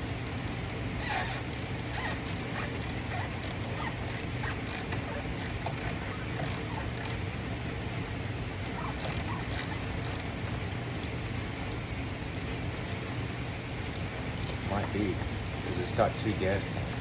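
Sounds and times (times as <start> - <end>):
short squeaky patters: 0.3 - 7.2, 8.6 - 10.6.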